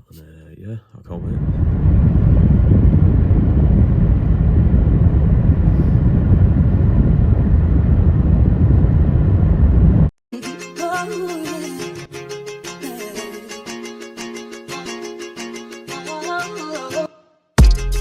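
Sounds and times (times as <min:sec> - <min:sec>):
car road and wind noise: 0:01.1 - 0:10.1.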